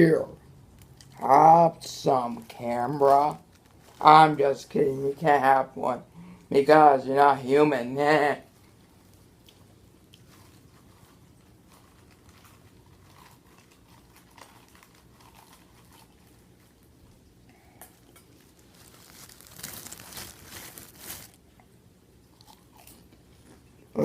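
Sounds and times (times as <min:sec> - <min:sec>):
popcorn bag crinkling: 0:00.7 - 0:05.7, 0:08.6 - 0:17.3, 0:18.1 - 0:21.5.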